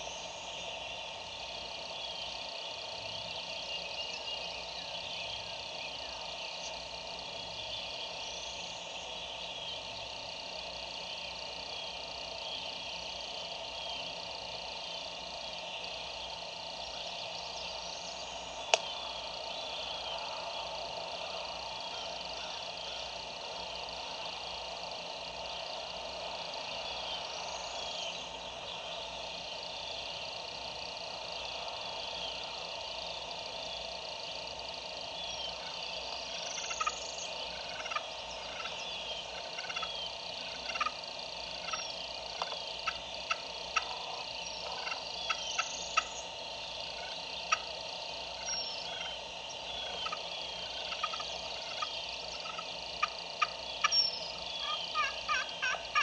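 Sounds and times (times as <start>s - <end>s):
songbirds chirping: 0.0s - 56.0s
distant turkey gobbling: 35.3s - 46.3s, 46.9s - 47.8s, 48.4s - 56.0s.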